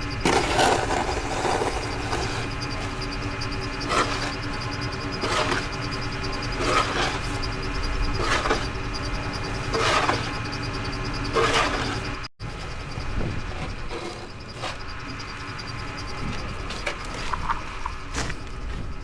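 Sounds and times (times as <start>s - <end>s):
truck engine idling: 0.0s - 19.0s
snow shovel scraping: 0.2s - 3.1s, 3.7s - 4.4s, 5.2s - 5.8s, 6.6s - 7.4s, 8.2s - 8.8s, 9.7s - 10.4s, 11.3s - 12.2s, 13.6s - 14.9s, 16.3s - 18.7s.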